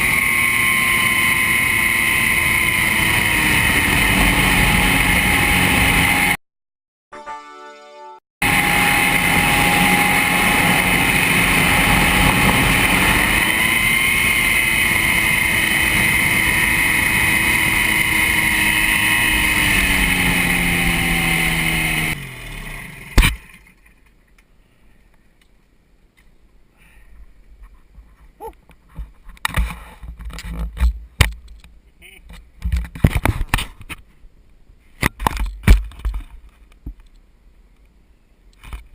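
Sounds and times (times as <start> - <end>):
ultralight engine and propeller: 0.0 - 6.4, 8.4 - 25.4
faint clicks and scrapes: 27.1 - 34.2, 34.8 - 38.9.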